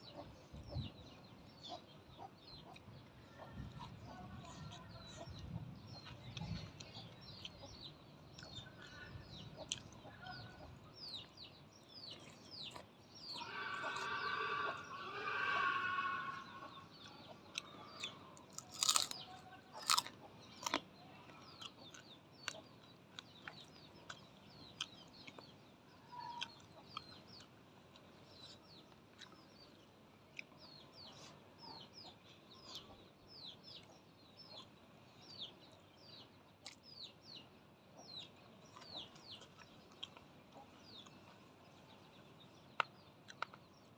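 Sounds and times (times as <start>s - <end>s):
chickens clucking: 0.0s - 11.4s, 12.0s - 34.8s
drawn-out chicken call: 13.3s - 17.8s.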